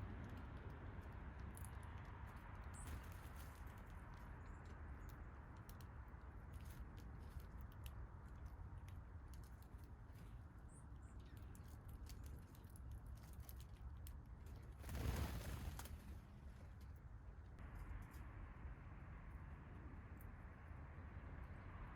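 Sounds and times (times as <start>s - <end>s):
birds pecking ticks: 0.0s - 16.1s
low outdoor rumble: 0.0s - 21.9s.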